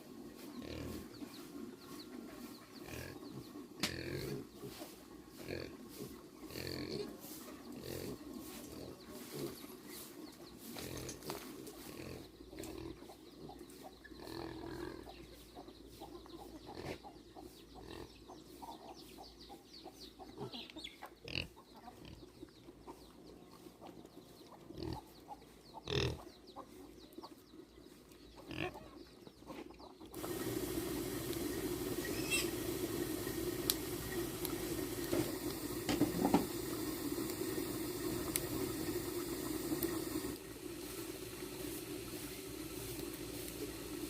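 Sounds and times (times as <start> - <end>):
pigs grunting: 0.6 - 1.2, 2.8 - 9.6, 10.7 - 13.2, 14.2 - 15.2, 16.7 - 17.0, 21.2 - 22.2, 24.7 - 25.1, 25.8 - 26.3, 28.4 - 28.9.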